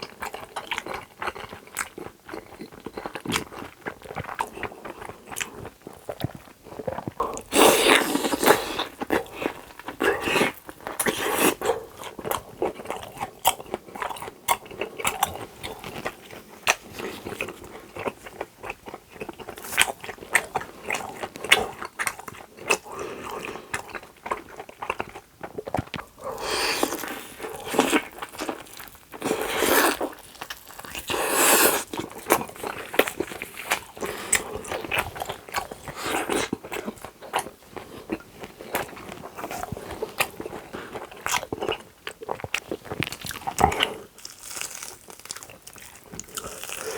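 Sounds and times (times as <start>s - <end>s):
person chewing and biting food: 0.0s - 46.9s.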